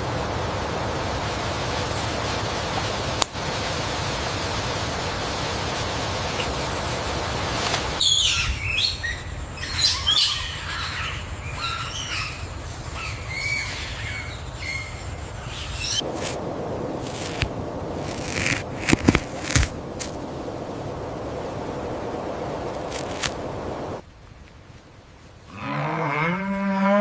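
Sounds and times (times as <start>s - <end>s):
steady hiss: 0.0s - 25.6s
bird chirps: 8.0s - 16.0s.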